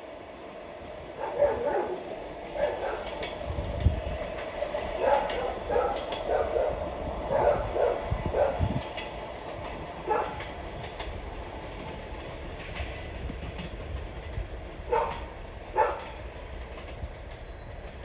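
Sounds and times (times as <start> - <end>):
train coaches rumbling past: 0.0 - 18.0
dog barking: 1.2 - 3.2, 5.0 - 8.7, 10.0 - 10.5, 14.9 - 16.2.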